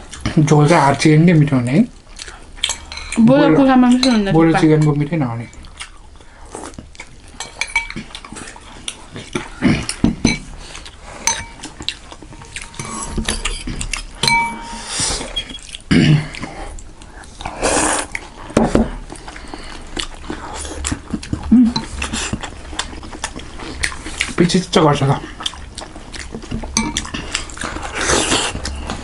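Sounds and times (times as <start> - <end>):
wet chewing: 0.0 - 29.0
cutlery clinking against bowls: 2.6 - 5.6, 7.4 - 8.4, 9.4 - 10.5, 11.2 - 15.6, 26.7 - 27.8.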